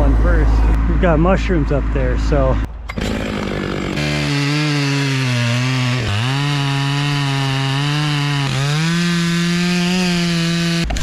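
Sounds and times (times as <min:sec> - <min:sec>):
chainsaw at full throttle: 0:02.9 - 0:11.0.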